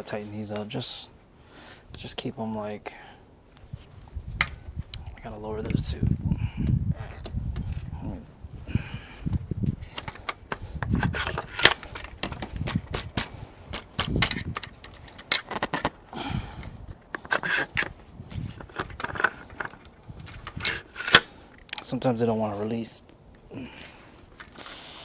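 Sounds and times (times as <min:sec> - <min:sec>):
metal parts scraping: 0:09.8 - 0:16.0, 0:17.0 - 0:21.9
hand tools clicking and tapping: 0:09.9 - 0:16.0, 0:17.0 - 0:21.9.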